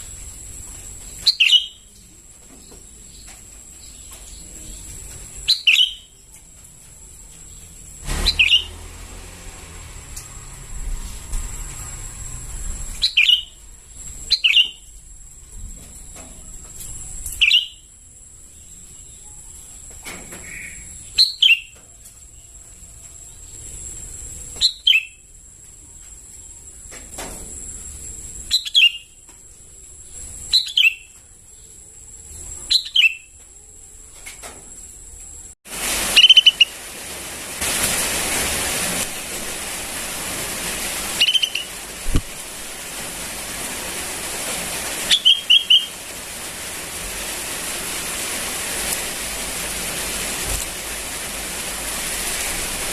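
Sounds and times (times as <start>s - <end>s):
steady hiss: 0.0s - 21.4s, 34.4s - 52.9s
bird calling sharp notes: 1.2s - 1.8s, 8.2s - 8.8s, 36.1s - 36.8s, 41.1s - 42.0s, 45.0s - 46.0s.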